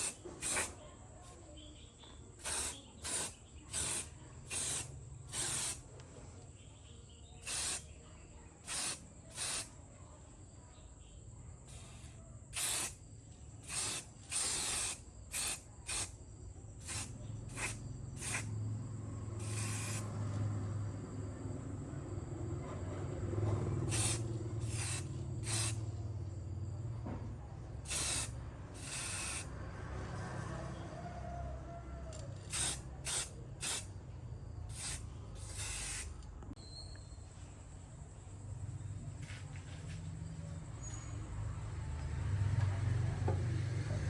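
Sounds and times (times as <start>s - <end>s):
pressurised spray hissing: 0.0s - 0.8s, 2.4s - 5.8s, 7.4s - 7.8s, 8.7s - 9.7s, 11.7s - 13.0s, 13.6s - 16.1s, 16.8s - 18.5s, 19.4s - 20.1s, 23.9s - 25.8s, 27.9s - 29.5s, 32.5s - 33.9s, 34.7s - 36.2s.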